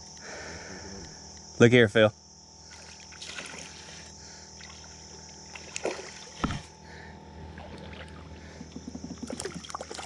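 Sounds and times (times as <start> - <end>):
steady high hiss: 0.0 - 2.8
water sloshing: 2.7 - 6.7, 7.5 - 10.0
dull thump: 6.4 - 6.7.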